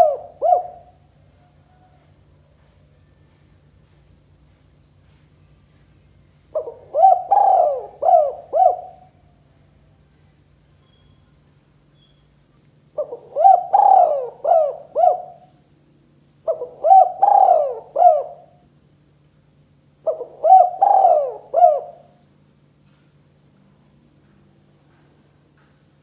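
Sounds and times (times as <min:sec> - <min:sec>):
dove cooing: 0:00.0 - 0:02.0, 0:06.6 - 0:09.2, 0:13.0 - 0:15.5, 0:16.4 - 0:18.6, 0:20.0 - 0:22.2.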